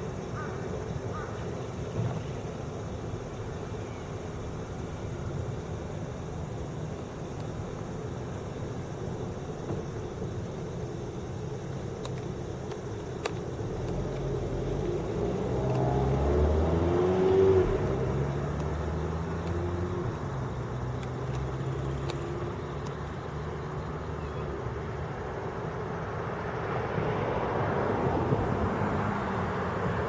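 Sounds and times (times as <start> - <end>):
low outdoor hum: 0.0 - 30.0
vehicle engine passing: 13.8 - 22.6.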